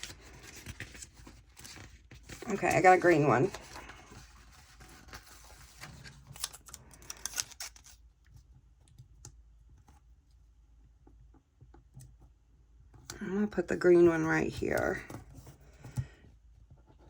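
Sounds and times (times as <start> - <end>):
paper stickers rustling: 0.0 - 8.0.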